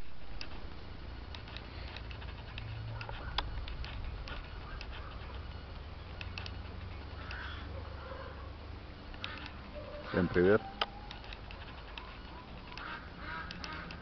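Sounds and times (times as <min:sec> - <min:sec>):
steady low rumble: 0:00.0 - 0:09.8.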